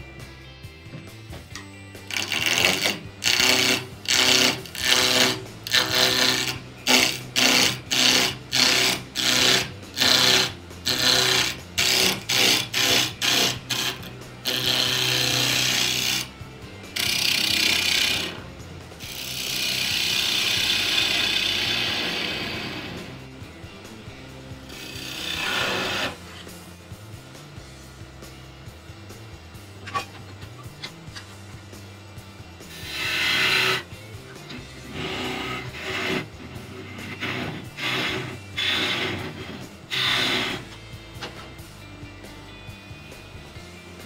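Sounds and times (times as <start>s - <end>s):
wood rasping: 2.1s - 23.4s, 24.4s - 26.6s, 29.8s - 31.4s, 32.7s - 41.4s.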